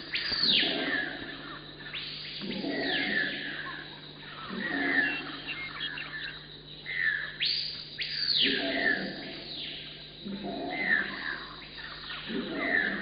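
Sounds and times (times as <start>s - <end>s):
birds calling: 0.0s - 9.0s.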